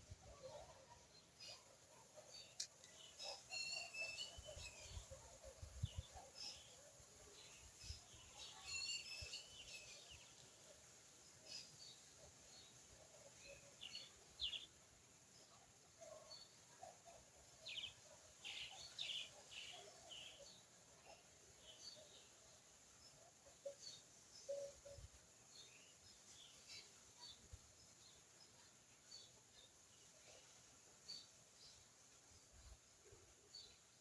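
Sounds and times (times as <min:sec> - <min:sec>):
faint bird chirps: 0:00.0 - 0:10.5, 0:15.5 - 0:31.9
low background noise: 0:00.0 - 0:34.0.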